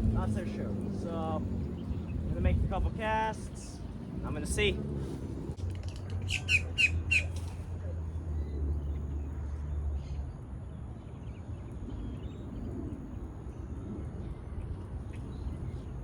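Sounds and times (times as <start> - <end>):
low rumble: 0.0 - 10.0
bird squawking: 6.2 - 7.6
faint bird chirps: 6.2 - 7.6.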